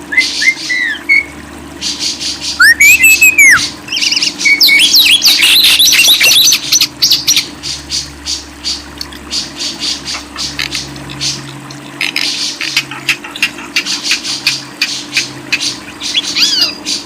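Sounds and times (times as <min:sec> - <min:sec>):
songbird whistling and chirping: 0:00.1 - 0:07.4, 0:16.0 - 0:17.0.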